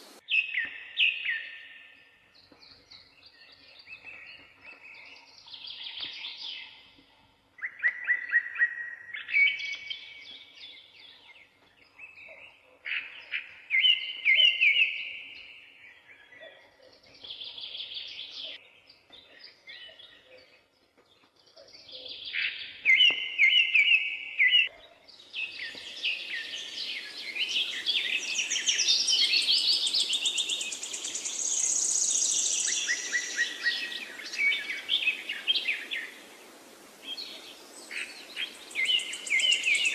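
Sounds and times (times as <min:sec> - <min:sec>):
steady hiss: 0:00.0 - 0:00.2, 0:25.8 - 0:39.9
songbirds singing: 0:00.0 - 0:39.9.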